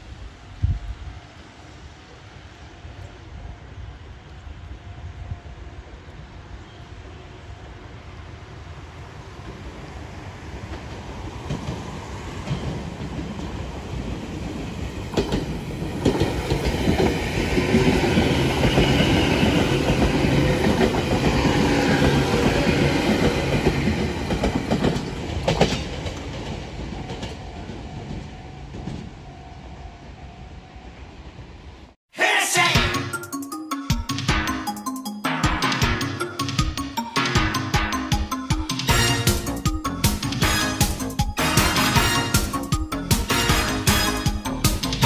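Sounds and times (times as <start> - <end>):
train wheels clattering over rail joints: 10.7 - 29.1.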